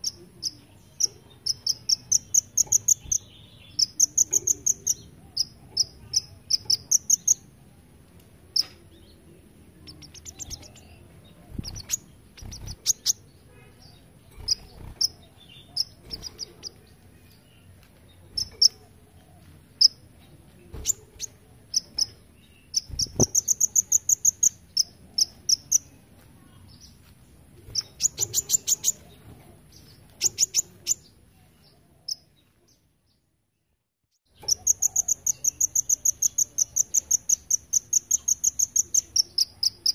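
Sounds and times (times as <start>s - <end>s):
sharp bird chips: 0.0s - 7.5s, 9.9s - 13.3s, 14.3s - 16.8s, 18.3s - 18.8s, 20.8s - 25.9s, 30.2s - 31.1s, 34.3s - 39.9s
sunbird high-pitched trills: 0.0s - 7.5s, 20.8s - 26.0s, 34.3s - 39.9s.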